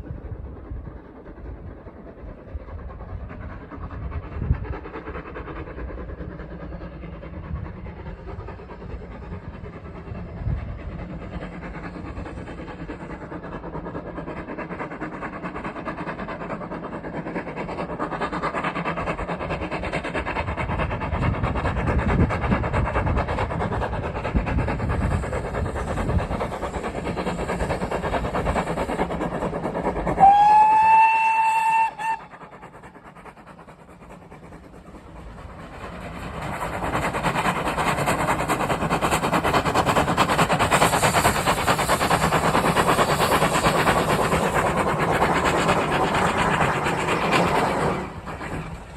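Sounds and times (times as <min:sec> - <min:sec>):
train rumbling: 0:00.0 - 0:48.9
train whistle: 0:30.2 - 0:32.3.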